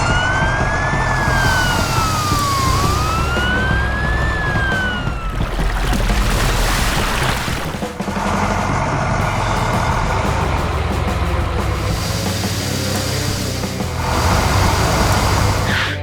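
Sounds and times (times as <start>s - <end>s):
police siren wailing: 0.0s - 6.2s
loud rumbling noise: 0.0s - 16.0s.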